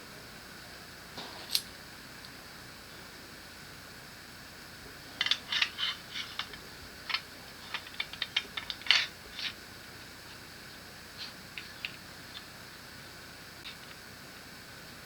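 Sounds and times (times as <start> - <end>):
metal gun parts clicking: 5.2 - 9.6.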